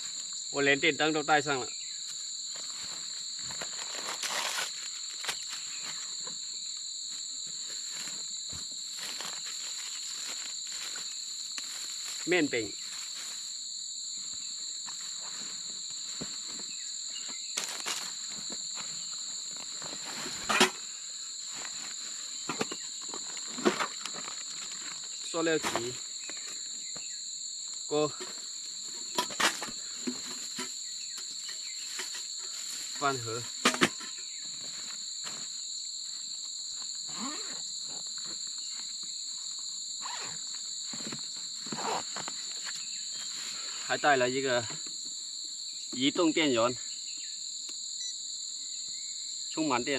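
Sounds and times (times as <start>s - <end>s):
insects trilling: 0.0s - 49.9s
camping gear rustling and knocking: 2.0s - 43.7s
rustling and handling noises: 7.6s - 13.5s.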